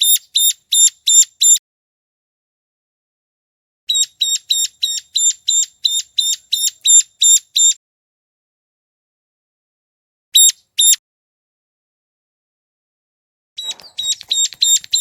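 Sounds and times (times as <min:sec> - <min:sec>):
recorded bird calls: 0:00.0 - 0:01.6, 0:03.9 - 0:07.8, 0:10.4 - 0:11.0, 0:13.6 - 0:15.0.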